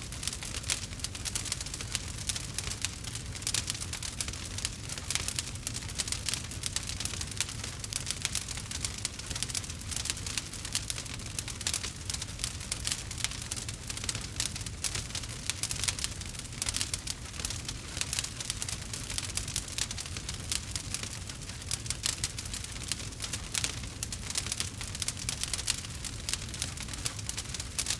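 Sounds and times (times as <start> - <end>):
wood fire crackling: 0.0 - 27.9.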